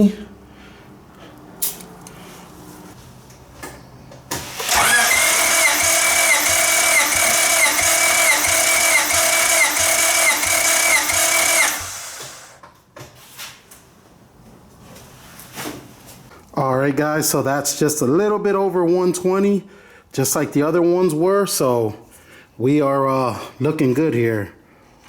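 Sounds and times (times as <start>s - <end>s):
starter motor cranking engine: 4.4s - 12.6s.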